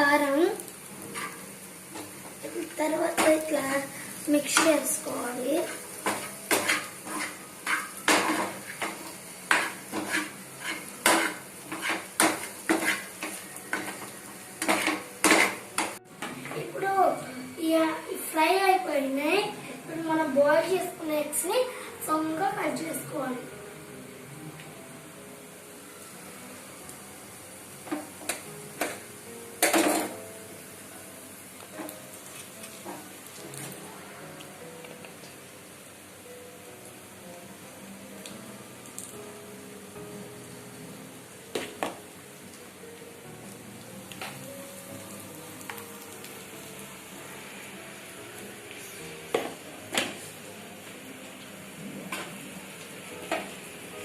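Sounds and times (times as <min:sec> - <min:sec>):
faint steady hiss: 0:00.0 - 0:54.0
spoon scraping and knocking pan: 0:01.1 - 0:02.4, 0:05.6 - 0:16.3.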